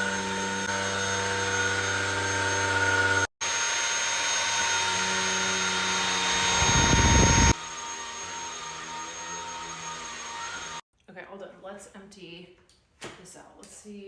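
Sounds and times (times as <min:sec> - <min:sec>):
vacuum cleaner motor whining: 0:00.0 - 0:10.8.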